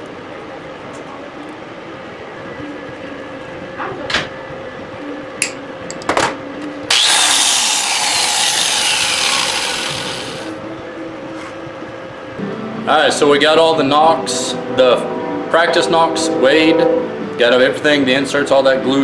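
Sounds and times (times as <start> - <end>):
angle grinder grinding metal: 6.9 - 10.6.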